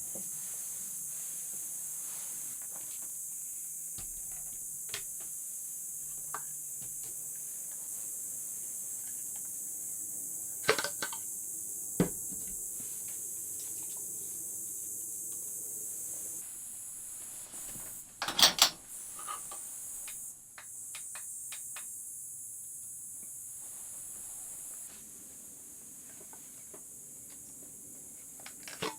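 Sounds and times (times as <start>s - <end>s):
high-pitched hiss: 0.0s - 28.9s
clicks and knocks of objects handled: 10.6s - 11.2s, 28.4s - 28.9s.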